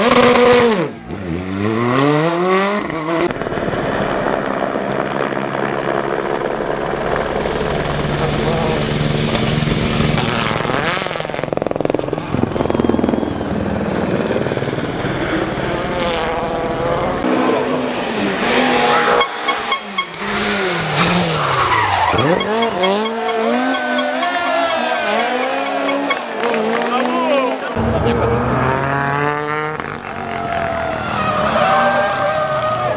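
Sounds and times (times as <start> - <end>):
rally car engine at full throttle: 0.0 - 32.9
tyres skidding: 18.0 - 28.0.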